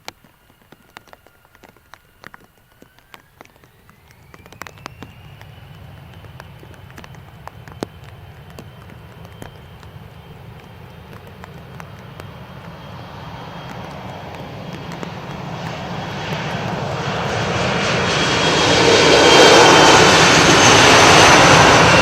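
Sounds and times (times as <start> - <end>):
raindrops ticking on microphone: 0.0 - 16.7
jet engines spooling up: 0.0 - 22.0.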